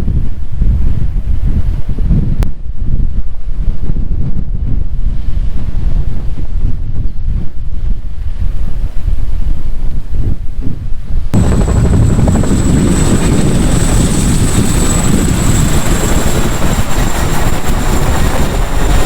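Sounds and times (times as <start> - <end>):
wind buffeting microphone: 0.0 - 19.0
helicopter rotor noise: 11.4 - 19.0
helicopter turbine whine: 11.4 - 19.0.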